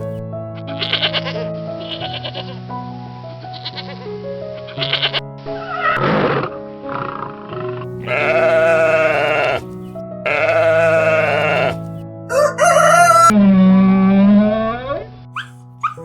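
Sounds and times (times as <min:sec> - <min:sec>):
background music with held notes: 0:00.0 - 0:16.0
farm animal bleating: 0:00.6 - 0:02.5, 0:03.5 - 0:04.0, 0:04.6 - 0:05.2, 0:08.0 - 0:13.3, 0:15.4 - 0:16.0.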